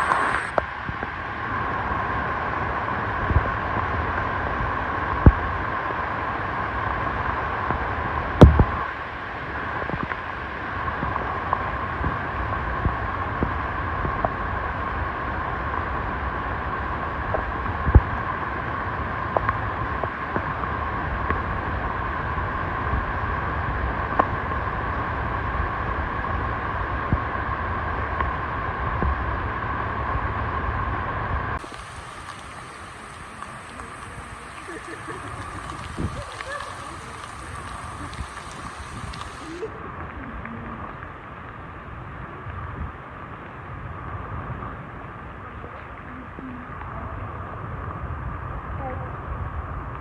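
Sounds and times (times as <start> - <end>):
steady rain: 0.0 - 50.0
sharp drip ticks: 31.6 - 41.1.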